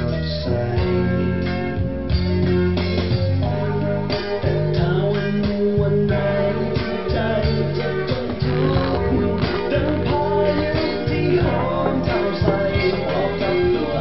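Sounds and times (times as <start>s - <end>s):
guitar-led song from vinyl: 0.0s - 14.0s.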